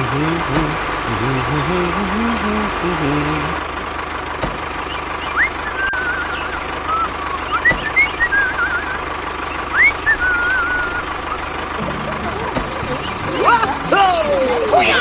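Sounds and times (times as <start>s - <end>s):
person whistling trills: 5.4s - 15.0s
small motor humming: 5.8s - 15.0s.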